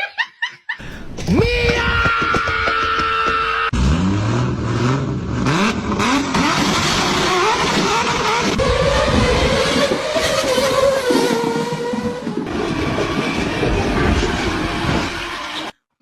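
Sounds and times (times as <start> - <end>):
vehicle engine revving: 3.7 - 15.8.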